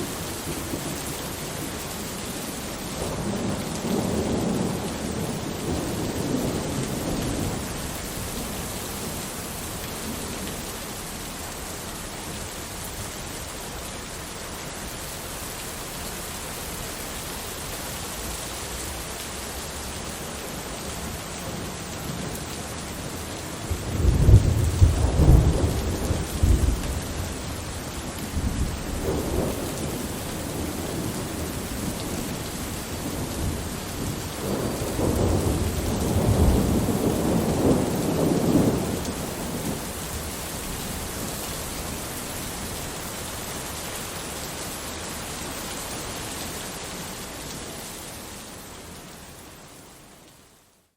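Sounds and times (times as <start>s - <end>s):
steady rain: 0.0s - 50.9s
thunder rumbling: 20.6s - 43.5s.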